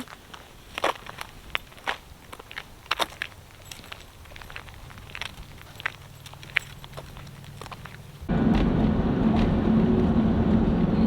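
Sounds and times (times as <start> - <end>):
road noise: 0.0 - 11.0
van engine humming: 2.4 - 11.0.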